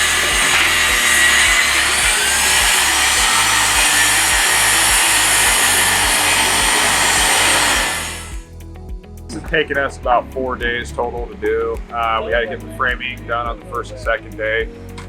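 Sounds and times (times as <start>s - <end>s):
power tool hissing: 0.0s - 8.5s
background music with low beat: 0.0s - 15.0s.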